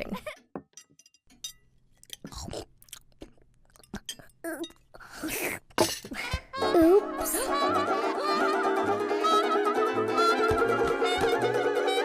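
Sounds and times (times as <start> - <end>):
cartoon chewing and crunching: 2.0 - 4.5.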